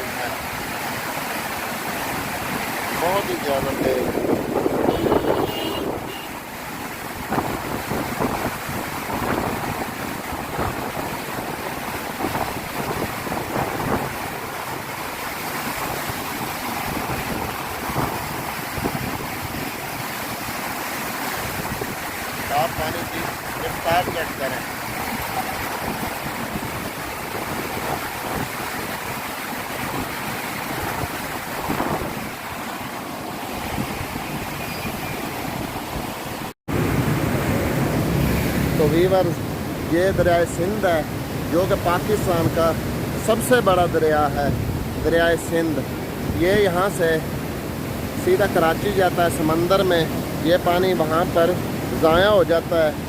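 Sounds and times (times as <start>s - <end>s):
floodwater rushing: 0.0s - 53.0s
wind buffeting microphone: 3.5s - 6.2s, 6.8s - 38.8s.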